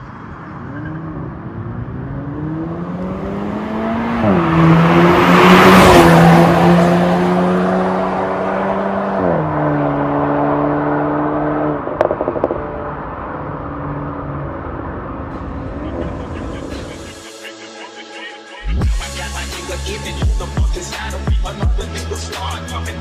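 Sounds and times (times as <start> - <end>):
car exhaust engine note: 11.6 - 17.1
sharp exhaust pops: 11.8 - 12.9.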